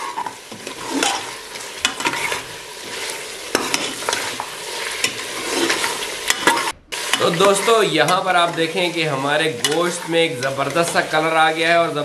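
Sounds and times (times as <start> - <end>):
meat sizzling in oil: 0.0 - 12.0
metal spoon knocking and scraping pot: 3.5 - 8.9.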